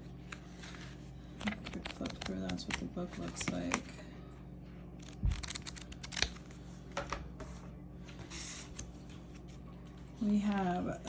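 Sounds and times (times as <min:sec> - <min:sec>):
cards and paper clicking: 0:01.4 - 0:03.9, 0:05.0 - 0:06.5.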